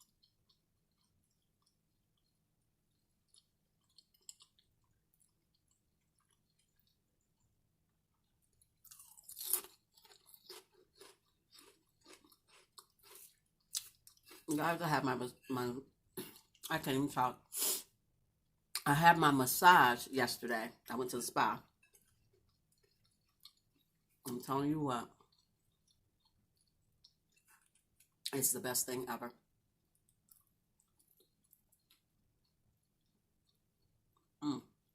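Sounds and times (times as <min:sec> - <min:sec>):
chewing crunchy food: 0:00.0 - 0:14.6, 0:21.6 - 0:24.4, 0:25.0 - 0:28.3, 0:29.9 - 0:34.4.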